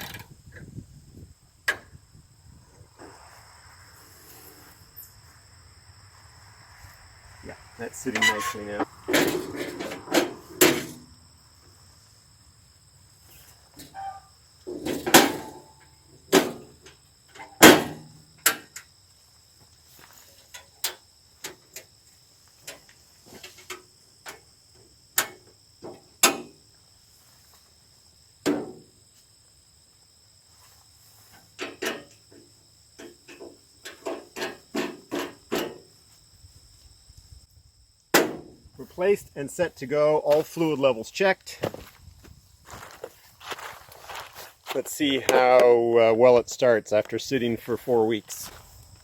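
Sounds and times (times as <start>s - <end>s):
high insect chirring: 0.0s - 14.7s.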